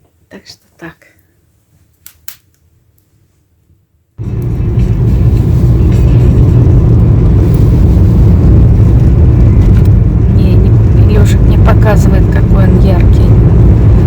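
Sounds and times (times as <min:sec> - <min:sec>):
car engine and road noise rumble: 0:04.2 - 0:14.0.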